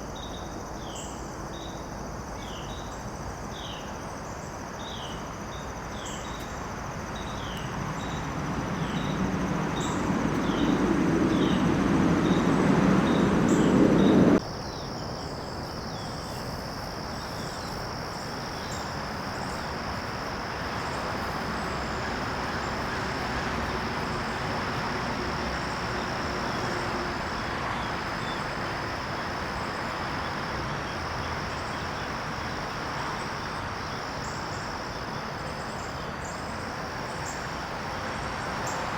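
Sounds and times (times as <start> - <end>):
insects trilling: 4.4 - 38.9
low rumble: 6.9 - 14.4.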